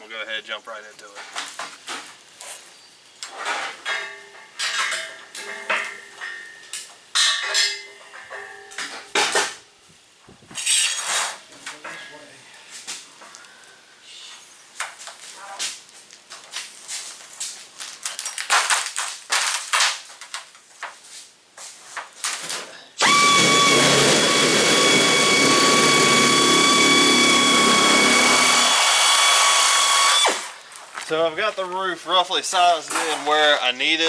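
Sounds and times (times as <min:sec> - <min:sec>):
power tool whining: 0:23.0 - 0:30.6.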